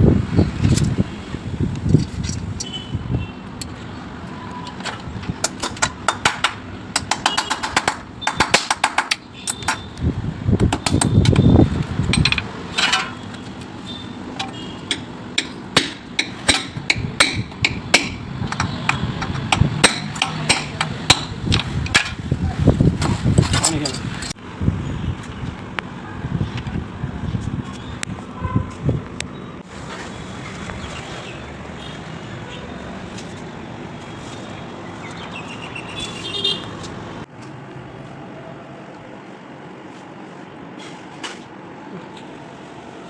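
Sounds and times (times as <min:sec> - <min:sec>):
hand tools knocking and tapping: 0:04.7 - 0:09.9, 0:10.6 - 0:13.2, 0:14.4 - 0:22.2.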